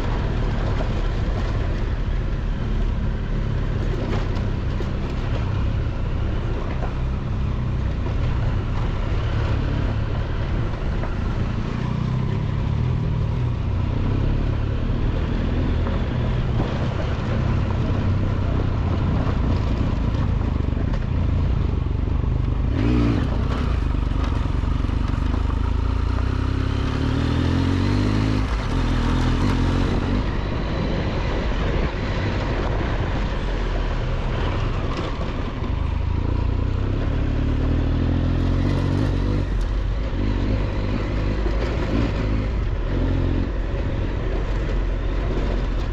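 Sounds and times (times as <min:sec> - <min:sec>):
wind noise: 0:00.0 - 0:36.3
motorcycle engine running: 0:00.0 - 0:45.9
tyre noise on dirt road: 0:00.0 - 0:45.9.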